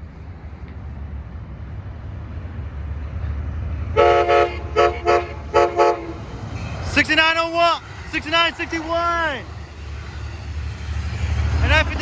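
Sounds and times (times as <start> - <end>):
train rumbling: 0.0 - 12.0
train horn blasts: 3.9 - 6.3.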